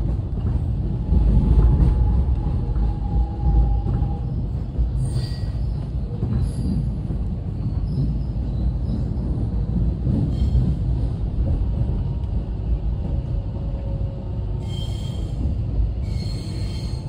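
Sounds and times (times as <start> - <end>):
train wheels rumbling on track: 0.0 - 17.0
high wheel squeal: 16.0 - 17.0.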